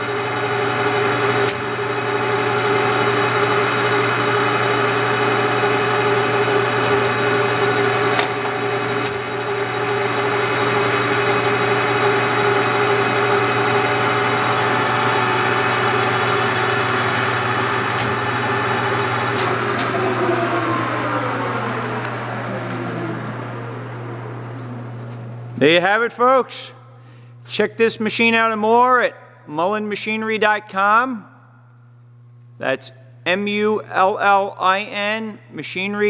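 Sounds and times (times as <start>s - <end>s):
lathe gear whine and motor hum: 0.0s - 26.4s.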